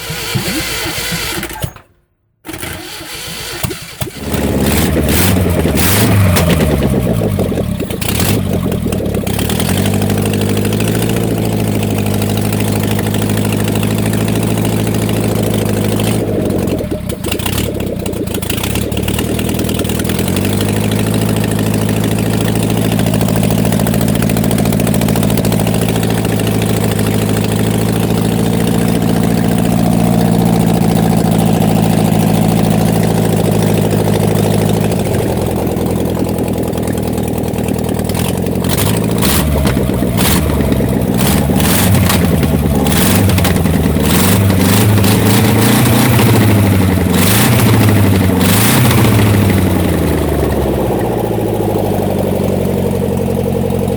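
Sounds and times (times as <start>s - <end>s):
air-cooled engine idling: 2.8s - 53.9s.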